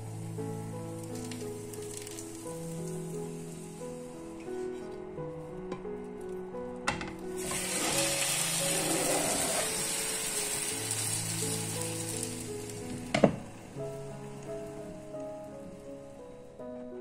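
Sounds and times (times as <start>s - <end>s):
food sizzling in a frying pan: 7.4s - 15.8s.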